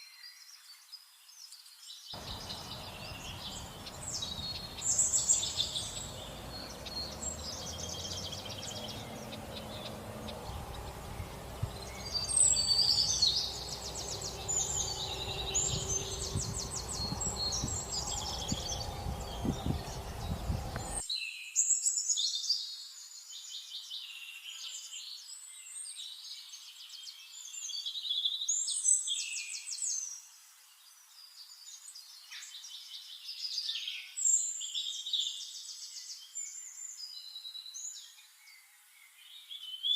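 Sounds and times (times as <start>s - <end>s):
songbirds chirping and trilling: 0.0s - 39.9s
low rushing background noise: 2.2s - 21.0s.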